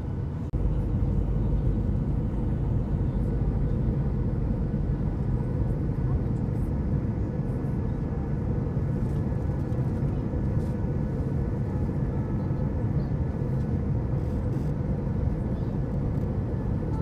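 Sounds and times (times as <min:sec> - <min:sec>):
airplane engine rumble in cabin: 0:00.0 - 0:17.0.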